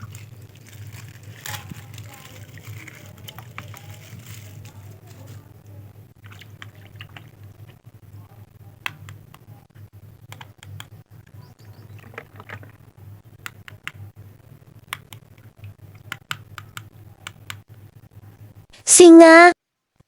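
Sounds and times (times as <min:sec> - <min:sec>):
small hard objects clicking: 0:00.0 - 0:05.6, 0:10.3 - 0:12.8, 0:14.9 - 0:17.6
steady low hum: 0:00.0 - 0:18.8.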